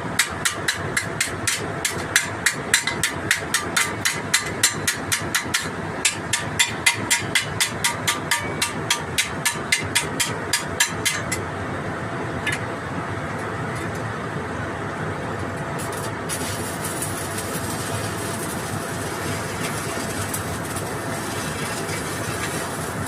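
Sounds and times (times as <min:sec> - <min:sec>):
machine humming: 0:11.6 - 0:23.0
hiss: 0:15.9 - 0:23.0.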